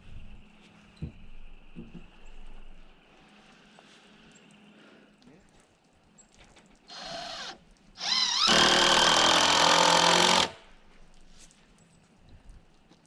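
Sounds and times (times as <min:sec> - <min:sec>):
power tool whining: 0:06.9 - 0:10.6.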